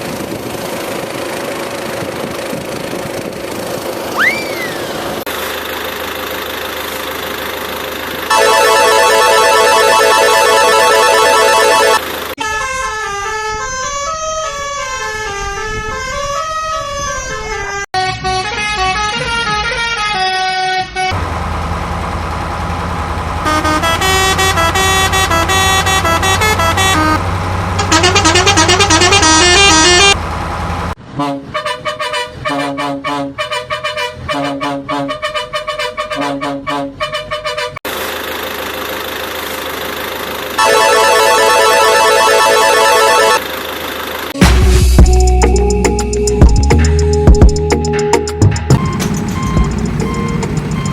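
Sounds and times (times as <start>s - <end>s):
electronic engine hum: 4.1s - 12.4s, 21.1s - 31.0s, 37.9s - 46.5s, 48.7s - 50.9s
warbling electronic horn tones: 8.3s - 12.7s, 23.4s - 30.2s, 40.6s - 43.4s, 48.7s - 50.9s
quick melodic beeps: 48.7s - 50.9s.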